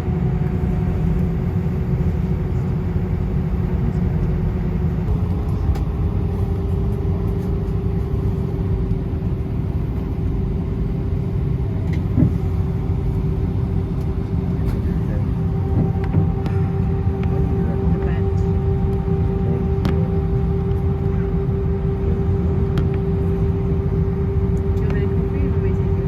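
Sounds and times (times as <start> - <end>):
aircraft engine rumble: 0.0 - 26.0
cabin hum: 11.8 - 26.0.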